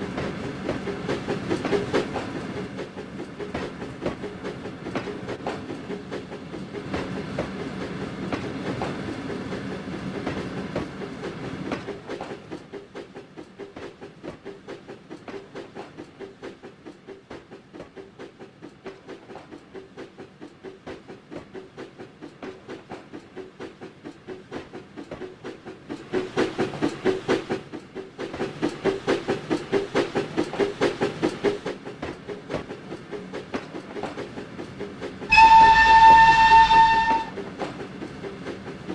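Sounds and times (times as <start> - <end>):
train clickety-clack on rails: 0.0 - 38.9.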